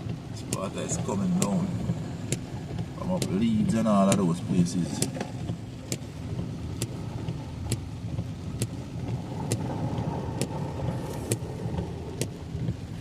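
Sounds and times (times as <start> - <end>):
car engine and wet tyres rumbling: 0.0 - 13.0
sharp clicks: 2.3 - 3.5, 4.1 - 4.3.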